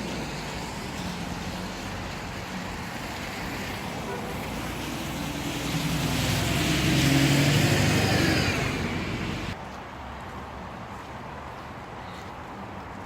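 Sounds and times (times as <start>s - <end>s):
tyres hissing on wet road: 0.0s - 9.6s
vehicle engine drone: 0.0s - 9.6s
background noise: 0.0s - 13.0s.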